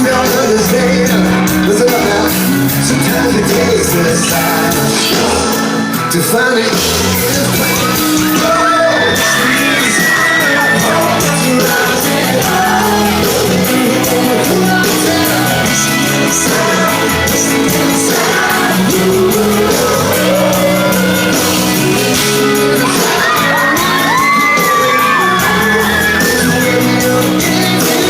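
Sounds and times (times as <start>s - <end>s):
drums: 0.0s - 28.0s
live rock band playing: 0.0s - 28.0s
person singing: 0.0s - 28.0s
shouts: 7.5s - 13.0s, 22.7s - 27.1s.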